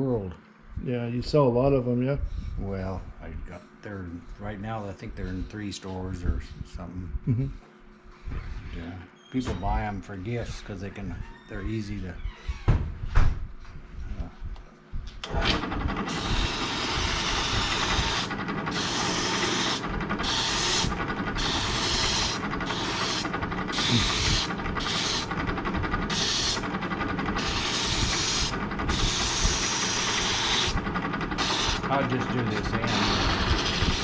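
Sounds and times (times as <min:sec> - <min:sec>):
power sander motor hum: 0:15.3 - 0:34.0
wood scraping on sander: 0:15.3 - 0:34.0.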